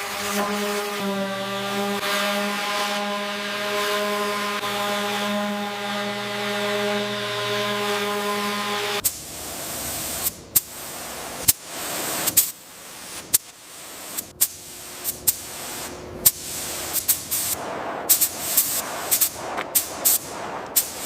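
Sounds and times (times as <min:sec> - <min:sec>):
hissing spray: 0:09.0 - 0:21.0.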